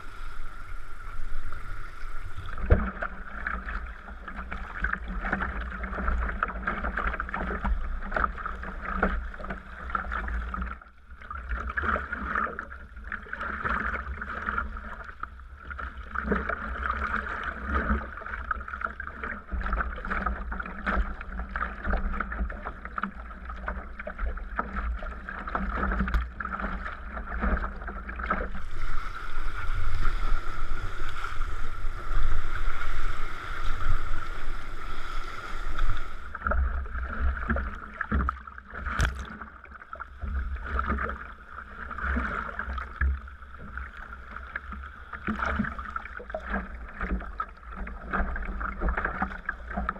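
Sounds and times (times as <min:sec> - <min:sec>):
paddle splashing in water: 0:00.0 - 0:49.9
sea water washing: 0:00.0 - 0:49.9.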